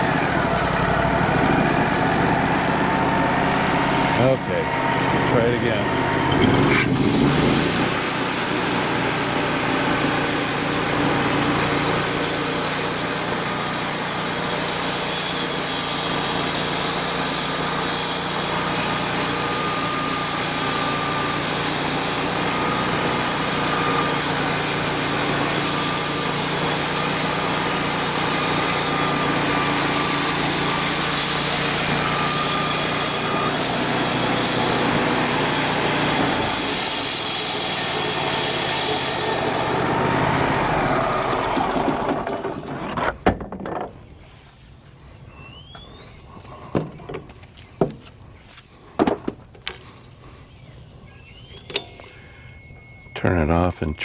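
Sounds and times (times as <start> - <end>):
band sawmill cutting log: 0.0 - 43.8
faint steady whine: 51.1 - 54.0.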